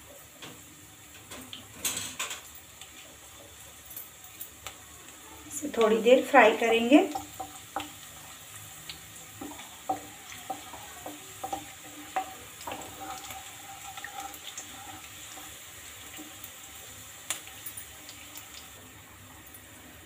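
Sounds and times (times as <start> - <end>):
garlic sizzling in hot oil: 0.0 - 20.0
wooden spatula scraping pan: 9.4 - 16.4.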